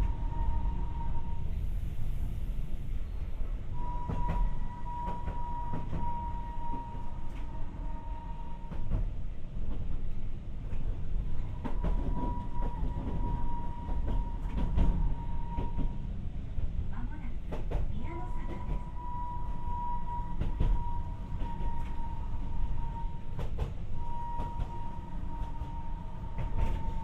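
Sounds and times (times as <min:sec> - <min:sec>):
train wheels rumbling: 0:00.0 - 0:27.0.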